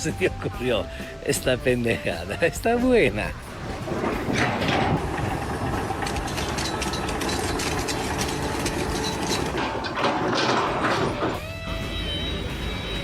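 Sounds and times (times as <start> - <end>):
steady tones: 3.0 - 11.5
machinery clattering with rapid clicks: 3.5 - 11.4.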